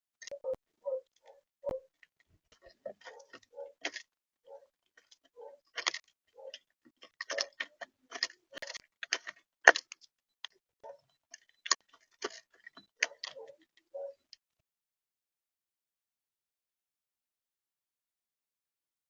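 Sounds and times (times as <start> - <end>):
birds pecking at bird feeder: 0.2 - 14.4.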